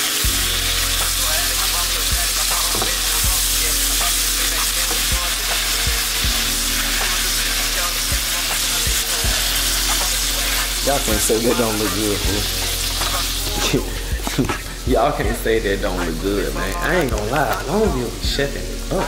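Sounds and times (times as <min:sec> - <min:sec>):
patties sizzling in a pan: 0:00.0 - 0:19.0
low bass thumps: 0:05.9 - 0:06.6, 0:12.2 - 0:16.2.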